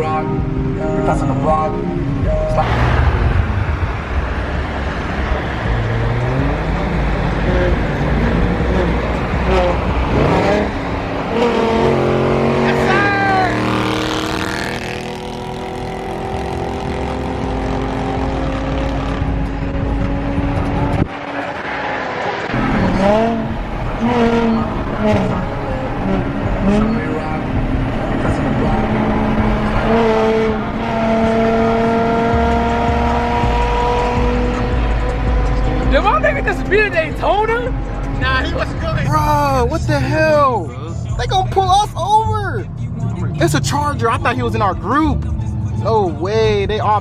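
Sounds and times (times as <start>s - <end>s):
car engine droning: 0.0s - 47.0s
road noise: 0.0s - 47.0s
deep rumble: 2.0s - 12.0s.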